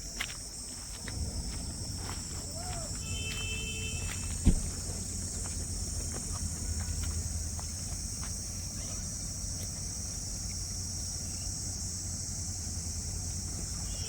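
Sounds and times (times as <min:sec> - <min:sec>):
insects chirping drone: 0:00.0 - 0:14.0
low rumble: 0:00.9 - 0:07.6.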